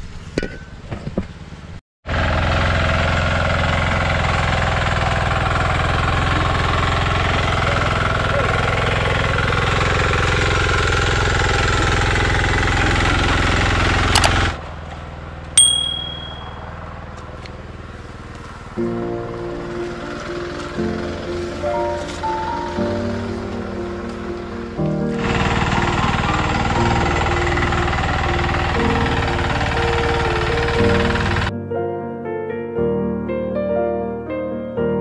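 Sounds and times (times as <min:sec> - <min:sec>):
tractor engine running under load: 0:00.0 - 0:31.5
single ding: 0:15.6 - 0:16.7
music: 0:18.7 - 0:35.0.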